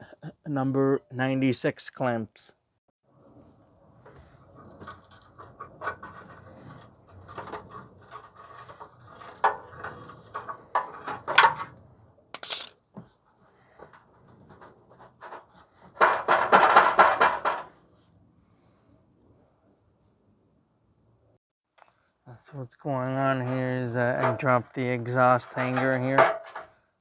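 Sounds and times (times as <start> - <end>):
metal tools clinking: 12.4 - 12.8.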